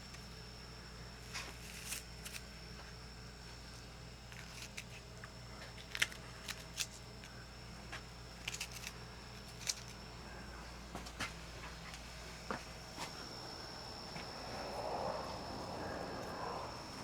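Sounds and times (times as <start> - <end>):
low hum: 6.1 - 17.0.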